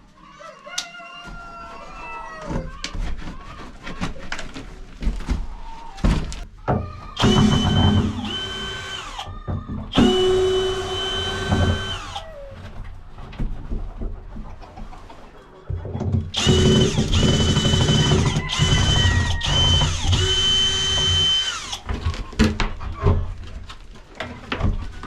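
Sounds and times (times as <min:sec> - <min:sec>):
electric motor whining: 0:10.0 - 0:12.2, 0:16.4 - 0:21.8
clattering and knocking: 0:11.3 - 0:12.1, 0:12.7 - 0:15.0, 0:15.6 - 0:25.0.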